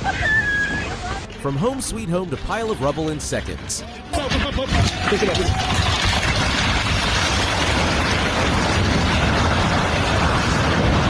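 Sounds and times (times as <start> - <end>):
heavy low rumble: 4.8 - 11.0.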